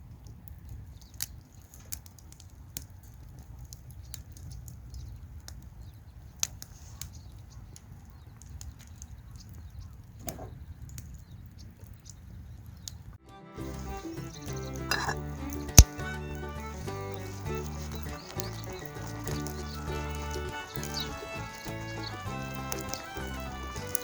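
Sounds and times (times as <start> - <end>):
campfire crackling and popping: 0.0 - 24.0
music: 13.2 - 24.0.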